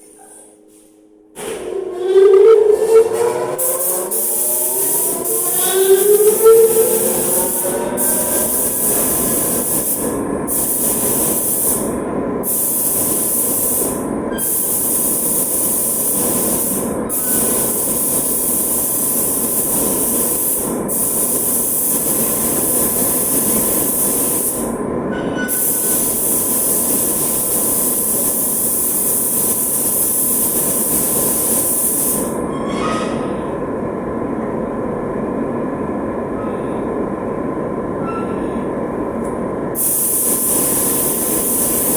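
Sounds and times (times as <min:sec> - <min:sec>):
steady machine hum: 0:00.0 - 0:41.9
spray gun hissing: 0:03.6 - 0:24.7, 0:25.6 - 0:32.4, 0:39.8 - 0:41.9.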